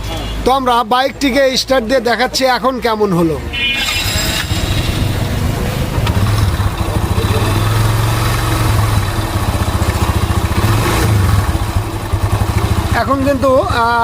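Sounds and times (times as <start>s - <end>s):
motorcycle engine running: 3.7s - 14.0s.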